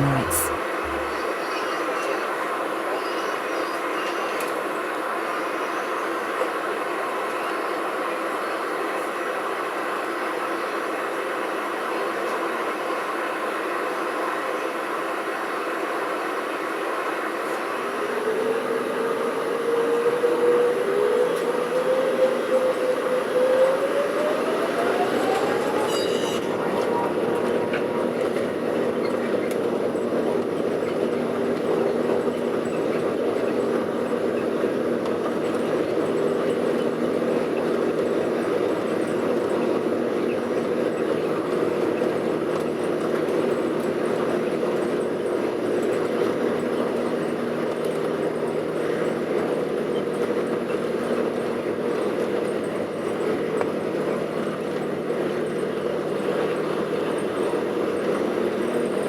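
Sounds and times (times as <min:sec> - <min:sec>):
air conditioning: 0:00.0 - 0:01.2.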